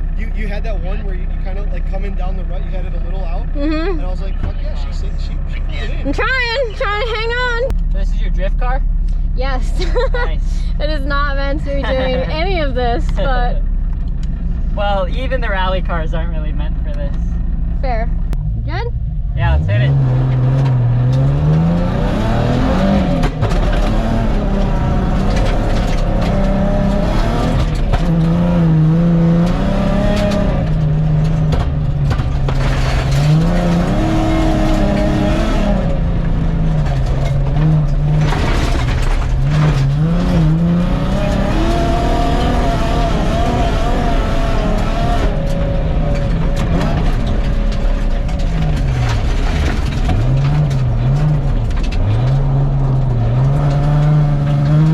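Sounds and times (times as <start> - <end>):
car engine revving: 0.0 - 54.9
knocks and clatter from gravel: 31.3 - 33.8, 36.9 - 40.4, 46.2 - 52.3.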